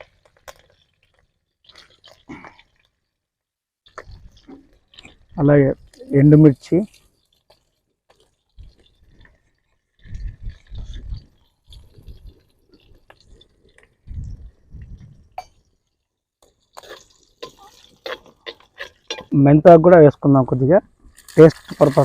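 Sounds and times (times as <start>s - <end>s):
spices sizzling in oil: 3.8s - 20.2s.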